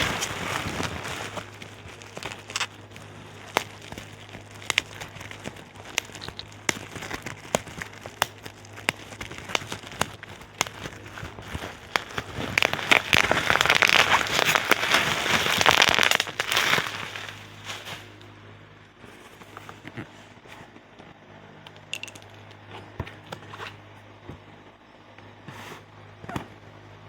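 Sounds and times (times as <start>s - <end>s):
plastic packaging crinkling: 0.0s - 18.3s, 21.8s - 22.7s.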